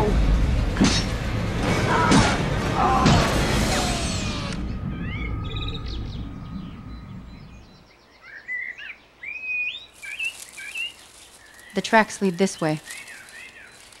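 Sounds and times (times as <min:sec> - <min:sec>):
low rumble: 0:00.0 - 0:07.9
songbirds chirping: 0:03.8 - 0:14.0.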